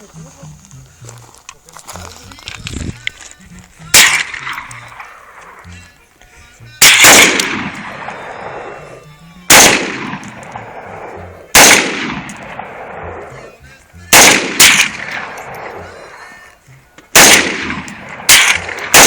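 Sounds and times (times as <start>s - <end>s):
rifle shots with echo: 3.9s - 5.6s, 6.8s - 8.8s, 9.5s - 13.4s, 14.1s - 15.8s, 17.1s - 19.0s.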